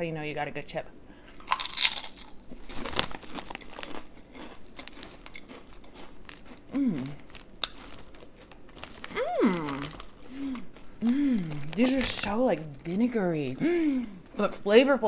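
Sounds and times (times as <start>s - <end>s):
crunchy potato chip chewing: 1.4s - 14.5s
person humming mm: 6.7s - 7.2s, 9.1s - 11.7s.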